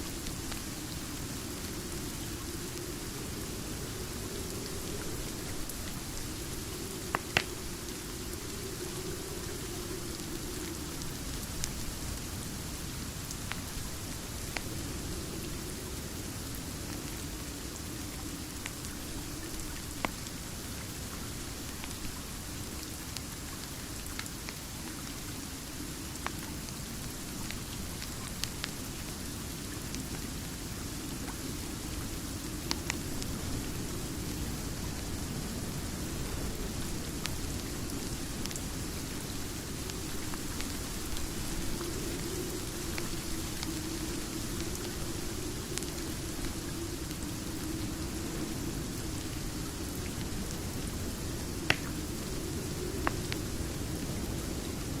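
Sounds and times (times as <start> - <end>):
steady rain: 0.0 - 55.0
wood fire crackling and popping: 0.1 - 12.2, 50.3 - 54.3.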